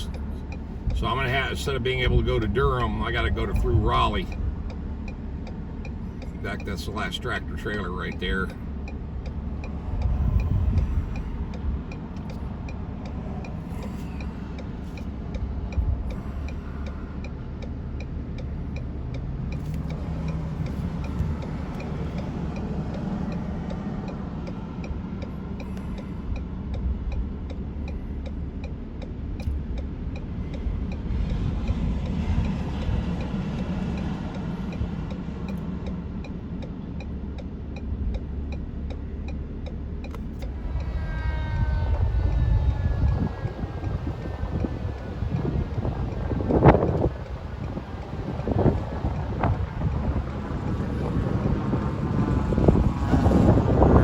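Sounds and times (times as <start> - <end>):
light even ticking: 0.0 - 54.0
vehicle engine rumbling: 0.0 - 54.0.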